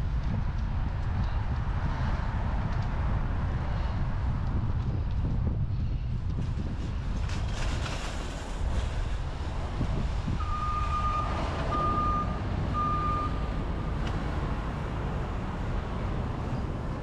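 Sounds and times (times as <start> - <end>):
traffic rumble: 0.0 - 17.0
wind on microphone: 0.0 - 17.0
vehicle reversing alarm beeping: 10.4 - 13.5.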